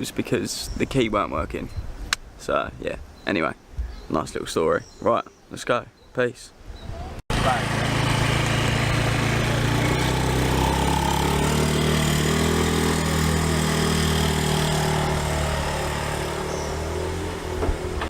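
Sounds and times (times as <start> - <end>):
motorbike engine running: 7.3 - 17.4.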